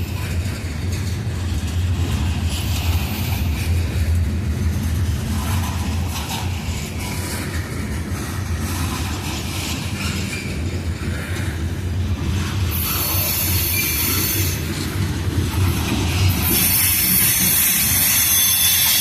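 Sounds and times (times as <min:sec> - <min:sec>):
train wheels rumbling on rail: 0:00.0 - 0:19.0
high-pitched wheel squeal: 0:12.7 - 0:14.7, 0:16.4 - 0:19.0.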